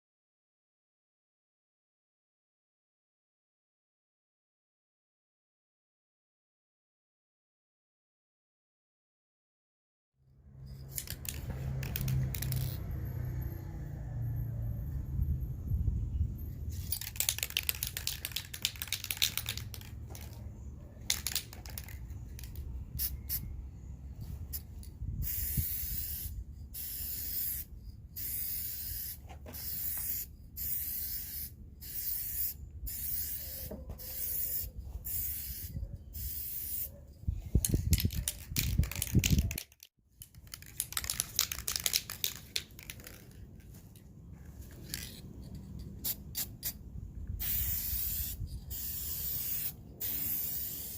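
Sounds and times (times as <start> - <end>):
aerosol spray bursts: 47.4 - 50.9.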